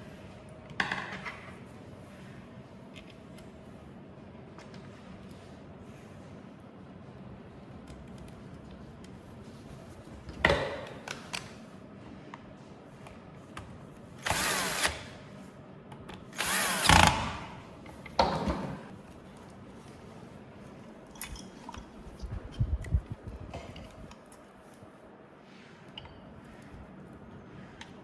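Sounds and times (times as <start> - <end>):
electric screwdriver bursts: 14.2 - 15.1, 16.4 - 17.4.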